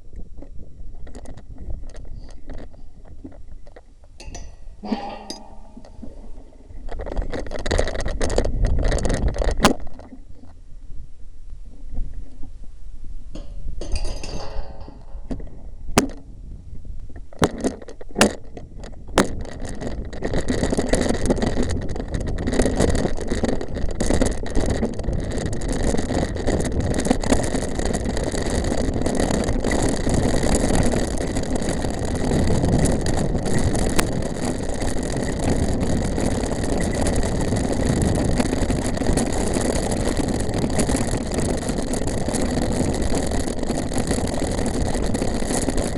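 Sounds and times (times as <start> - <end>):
bike rattling: 1.2 - 10.0, 13.4 - 16.4, 17.4 - 45.9
rushing wind: 18.7 - 45.9
bike tyre noise: 19.0 - 45.9.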